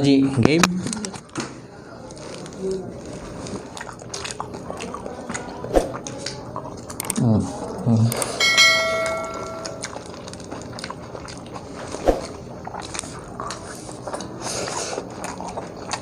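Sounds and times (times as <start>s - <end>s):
chewing and biting food: 2.0s - 8.4s, 9.8s - 16.0s
ringing clink: 8.4s - 10.0s.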